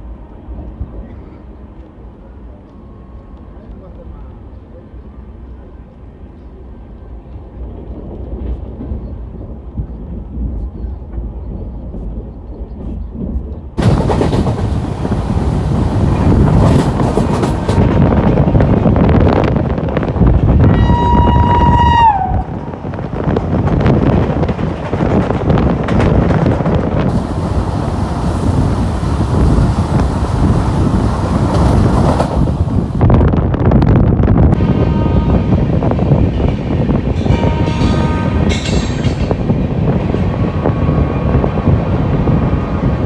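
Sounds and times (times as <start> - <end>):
train rumbling from aboard: 0.0 - 43.0
rush of wheel and wind noise: 11.4 - 43.0.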